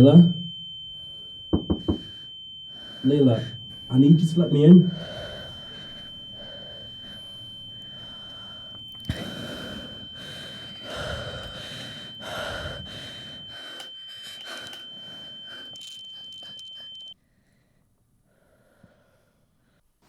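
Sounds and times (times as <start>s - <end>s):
high-pitched ringing tone: 0.0s - 17.2s
person breathing heavily: 1.9s - 16.6s.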